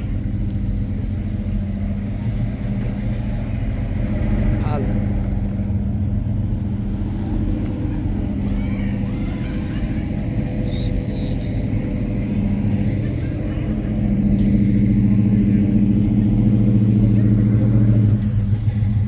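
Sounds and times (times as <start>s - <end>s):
car engine rumbling: 0.0s - 19.0s.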